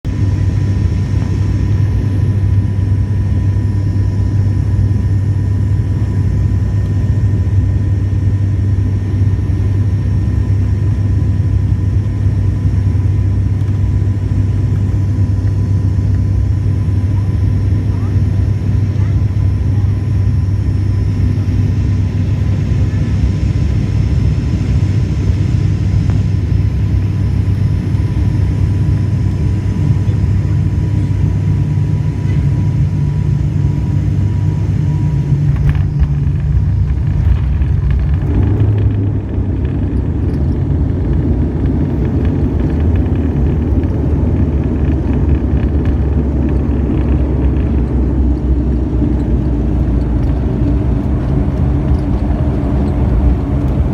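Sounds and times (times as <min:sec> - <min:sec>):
airliner engines and airflow rumble: 0:00.0 - 0:53.9
faint steady whine: 0:00.1 - 0:53.9
wheels rolling on runway: 0:35.4 - 0:53.9.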